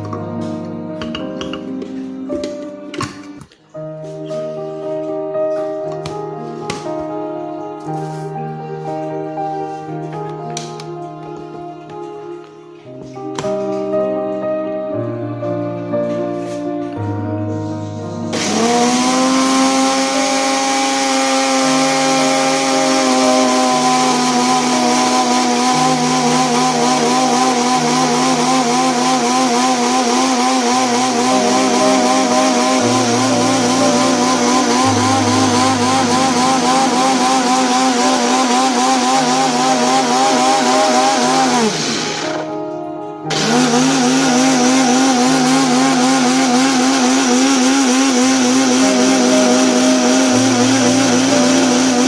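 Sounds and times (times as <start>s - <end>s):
soft background music: 0.0s - 52.0s
blender motor whining: 18.3s - 42.6s, 43.3s - 52.0s.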